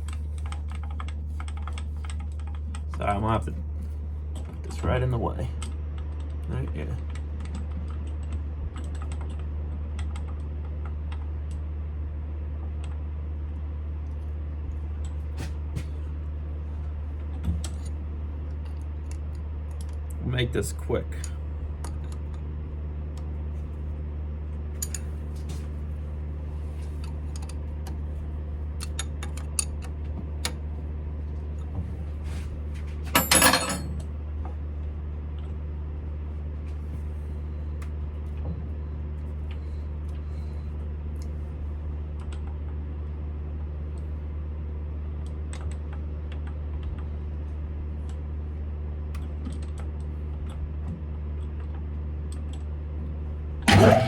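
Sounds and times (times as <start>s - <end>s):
metallic clatter: 33.1s - 34.0s, 53.7s - 54.0s.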